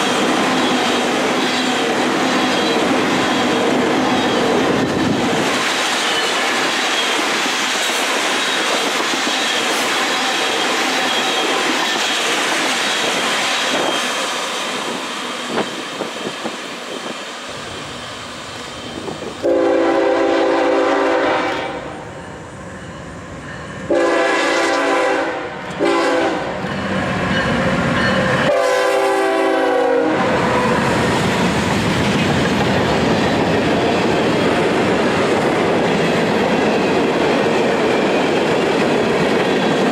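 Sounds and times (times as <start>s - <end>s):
train wheels on rails: 0.0s - 39.9s
locomotive air horn blasts: 19.4s - 22.0s, 23.9s - 26.5s, 28.5s - 30.4s.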